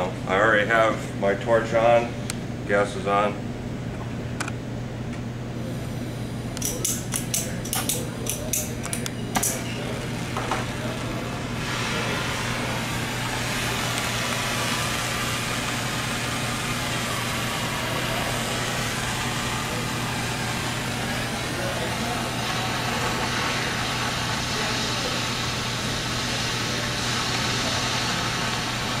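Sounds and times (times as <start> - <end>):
gas torch flame hissing: 5.6 - 29.0.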